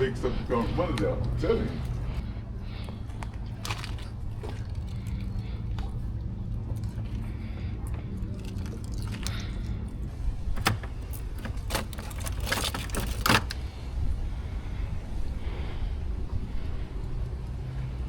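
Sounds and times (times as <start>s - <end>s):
steady low rumble: 0.0s - 18.0s
sharp clicks and rattles: 6.6s - 13.6s.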